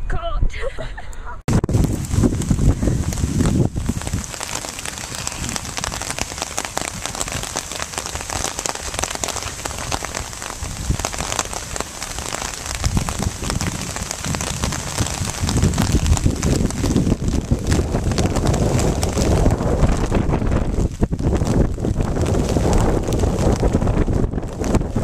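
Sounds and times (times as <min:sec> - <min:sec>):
rain pattering: 0:01.5 - 0:25.0
low rumble: 0:12.4 - 0:25.0.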